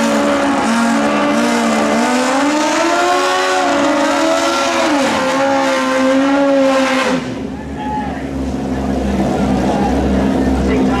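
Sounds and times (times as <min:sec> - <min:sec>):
motorcycle engine at high revs: 0:00.0 - 0:07.4.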